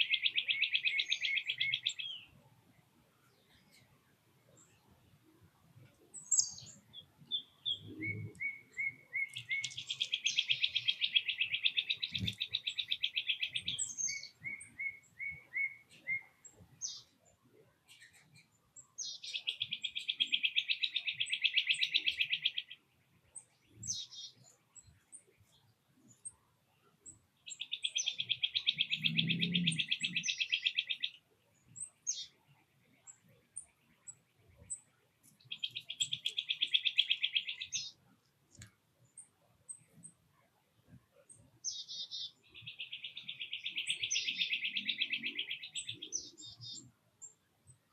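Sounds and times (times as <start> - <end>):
songbird trilling: 0.0 - 2.3, 6.2 - 17.1, 19.0 - 22.8, 27.5 - 31.2, 35.4 - 38.0, 41.6 - 46.9.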